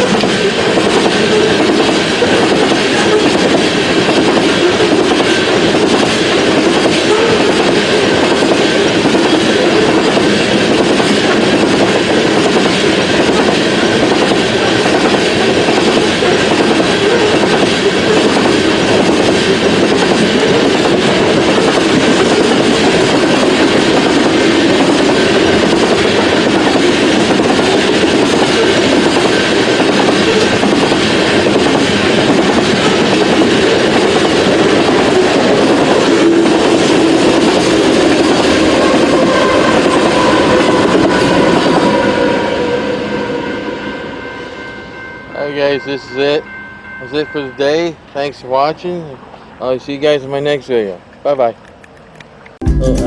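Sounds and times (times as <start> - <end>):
wheels clattering over rail joints: 0.0 - 42.0
freight train rumbling past: 0.0 - 53.0.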